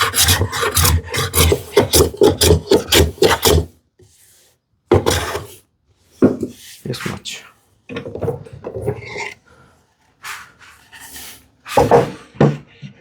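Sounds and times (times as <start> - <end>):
hand plane strokes on wood: 0.0 - 3.7.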